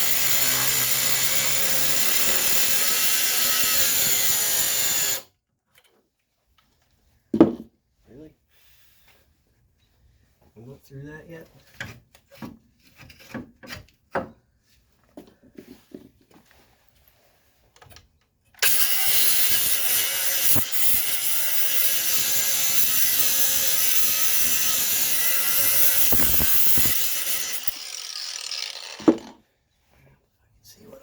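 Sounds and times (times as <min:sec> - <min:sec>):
power tool cutting through metal: 0:00.0 - 0:05.3, 0:18.6 - 0:29.3.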